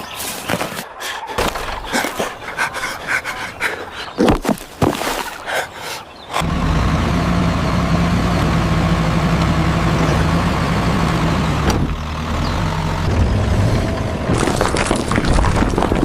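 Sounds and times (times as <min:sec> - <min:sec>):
tractor engine humming: 0:06.4 - 0:14.3.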